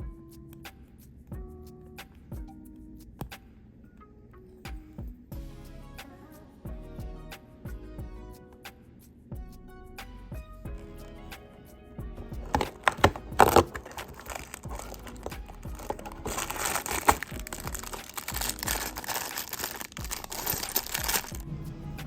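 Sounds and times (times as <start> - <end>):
packaging crinkling and tearing: 12.4 - 21.4
sharp cracks: 12.5 - 21.4.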